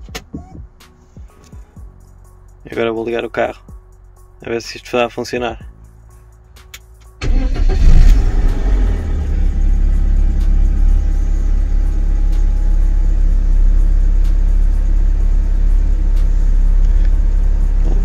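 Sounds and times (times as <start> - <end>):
car engine starting and idling: 7.0 - 18.0.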